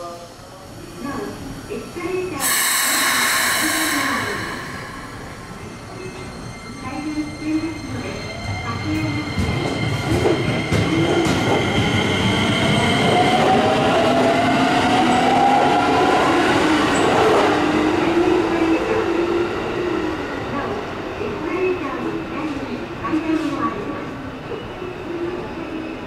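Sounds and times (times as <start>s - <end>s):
electric train rolling past: 1.4s - 20.2s.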